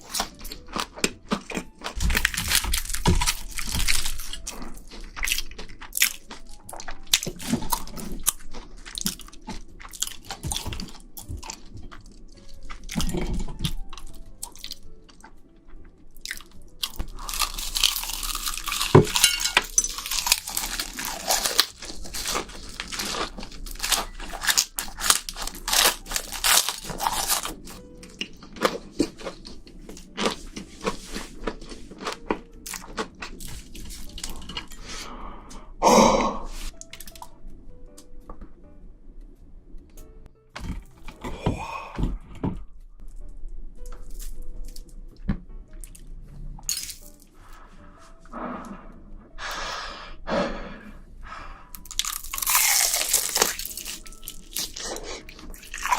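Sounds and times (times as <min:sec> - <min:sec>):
crunching shrimp: 0:00.0 - 0:34.9, 0:51.7 - 0:55.9
soft chewing: 0:00.0 - 0:34.9, 0:51.8 - 0:55.9.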